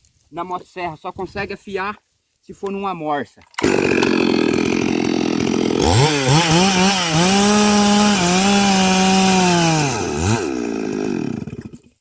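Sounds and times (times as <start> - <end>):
chainsaw revving: 3.6 - 12.0.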